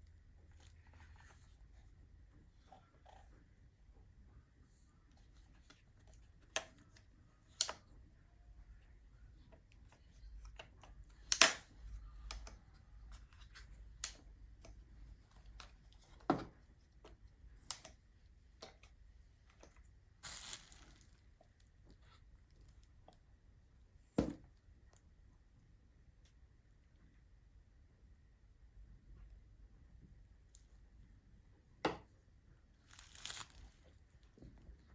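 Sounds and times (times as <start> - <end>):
packaging crinkling: 20.2 - 21.2, 32.9 - 33.8.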